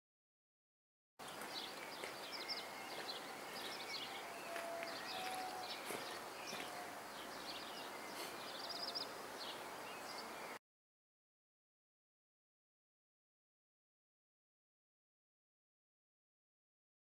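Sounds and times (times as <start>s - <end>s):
songbirds chirping and twittering: 1.2s - 10.6s
steady open-air hiss: 1.2s - 10.6s.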